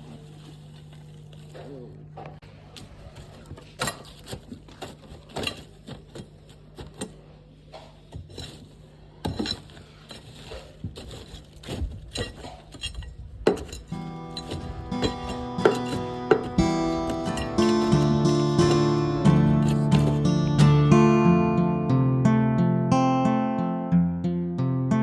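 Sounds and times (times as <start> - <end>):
steady low hum: 0.0 - 22.0
hand tools knocking: 9.2 - 20.7
acoustic guitar music: 13.6 - 25.0.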